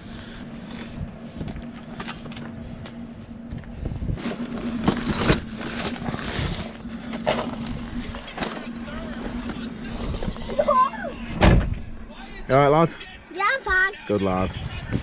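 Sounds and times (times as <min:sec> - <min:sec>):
rumbling background: 0:00.0 - 0:12.8
low mechanical hum: 0:00.0 - 0:15.0.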